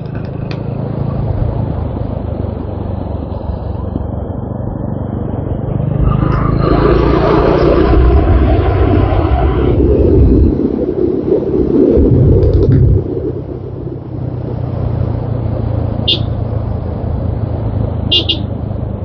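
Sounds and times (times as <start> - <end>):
motorcycle engine: 14.9 - 18.8.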